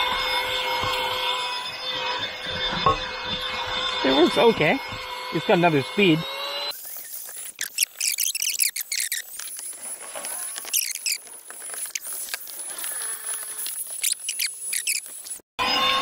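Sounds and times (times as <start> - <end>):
small bird chirping: 6.8 - 9.6, 10.6 - 11.2, 13.9 - 15.4.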